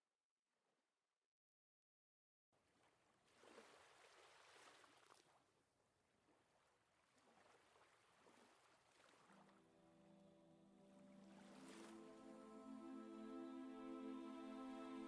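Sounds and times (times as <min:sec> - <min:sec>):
flowing water: 0:07.1 - 0:15.0.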